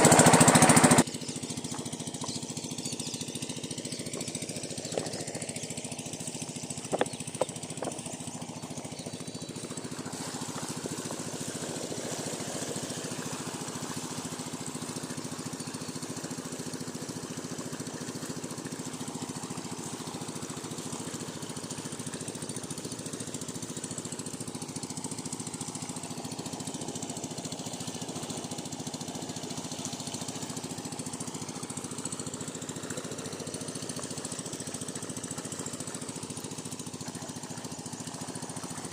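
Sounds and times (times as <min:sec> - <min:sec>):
diesel pump engine thumping: 0:04.1 - 0:08.9.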